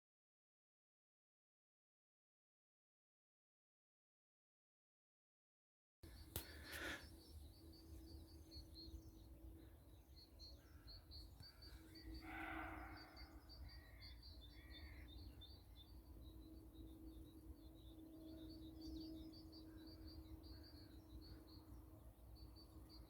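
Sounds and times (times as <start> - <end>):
faint woodland ambience: 6.0 - 23.0
rapid high bird chirps: 6.1 - 23.0
deer bark: 12.2 - 13.2.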